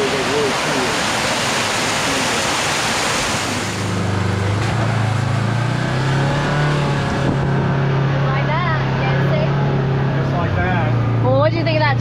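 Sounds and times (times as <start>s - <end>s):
rushing waterfall: 0.0s - 5.5s
vehicle engine running: 3.6s - 12.0s.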